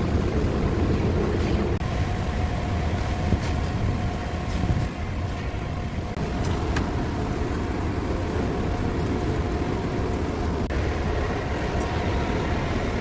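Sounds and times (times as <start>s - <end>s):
faint steady whine: 0.0s - 13.0s
ventilation fan droning: 0.0s - 13.0s.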